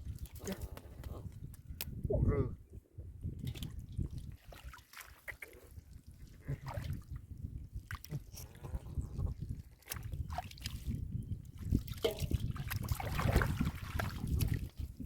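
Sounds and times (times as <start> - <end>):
water splashes and knocks: 3.4 - 5.5, 9.8 - 11.0, 11.6 - 15.0
hands sloshing in muddy water: 3.4 - 15.0.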